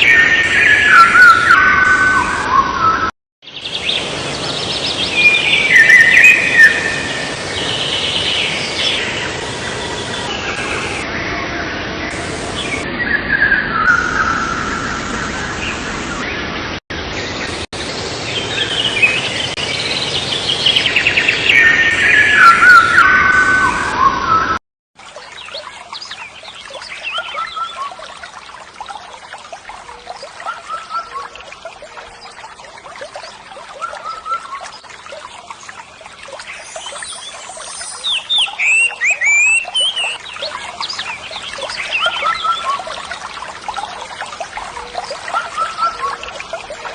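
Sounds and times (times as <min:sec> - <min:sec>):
small birds chirping: 0:33.0 - 0:43.0.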